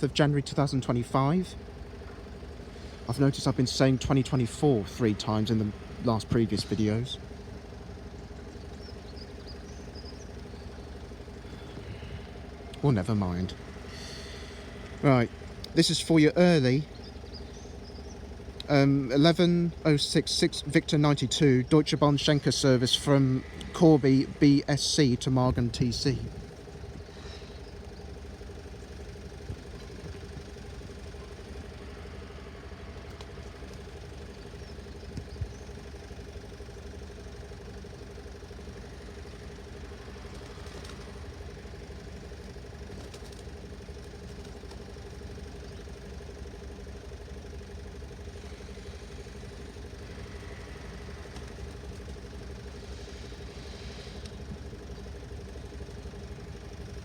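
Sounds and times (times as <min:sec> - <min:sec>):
engine idling: 0:00.0 - 0:57.0
faint clicks: 0:32.9 - 0:35.6.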